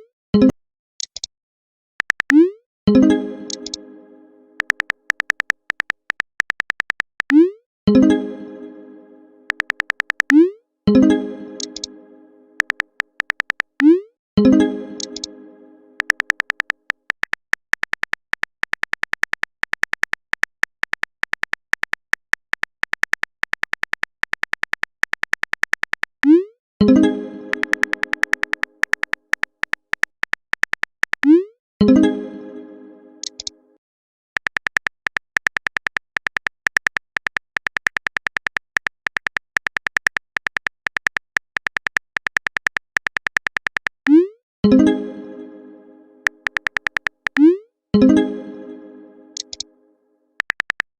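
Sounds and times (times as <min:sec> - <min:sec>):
short electronic typing clicks: 0:02.0 - 0:02.5, 0:03.5 - 0:03.8, 0:04.6 - 0:07.4, 0:09.5 - 0:10.4, 0:11.6 - 0:11.9, 0:12.6 - 0:13.9, 0:16.0 - 0:26.4, 0:27.5 - 0:31.4, 0:33.2 - 0:33.5, 0:34.4 - 0:44.2, 0:46.2 - 0:47.5, 0:49.4 - 0:49.6, 0:50.4 - 0:50.9.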